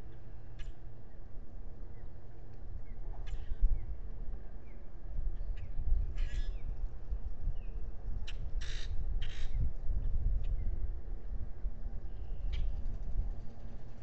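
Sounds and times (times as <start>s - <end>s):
wind rumbling on microphone: 0.0s - 14.0s
harsh rasping bird calls: 6.2s - 6.6s, 8.6s - 9.6s.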